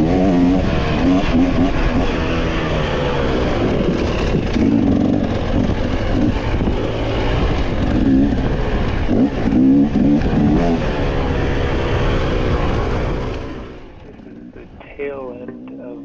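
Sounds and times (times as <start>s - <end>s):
off-road engine revving: 0.0s - 16.0s.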